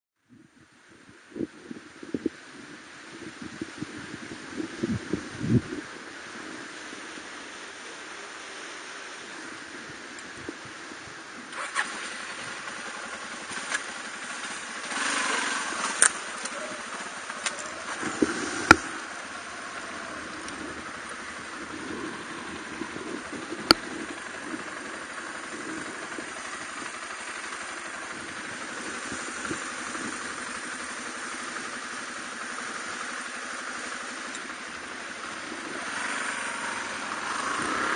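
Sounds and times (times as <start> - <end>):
motorcycle engine starting and idling: 3.1 - 37.9.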